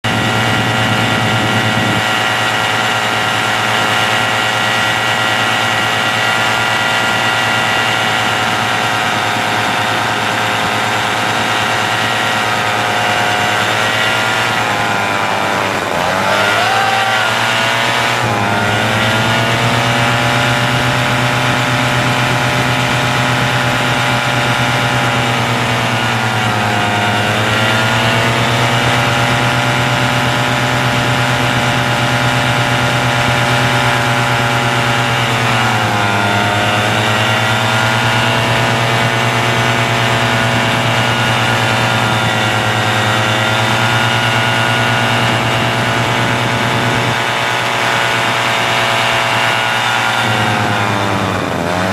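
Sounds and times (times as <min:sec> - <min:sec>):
engine running: 0:00.0 - 0:51.9.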